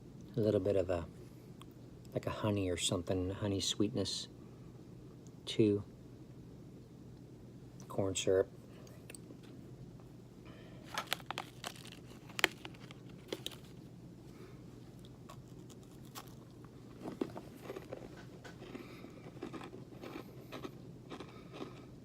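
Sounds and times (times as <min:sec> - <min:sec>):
granola bar crunching: 0:10.9 - 0:13.8, 0:15.0 - 0:21.8.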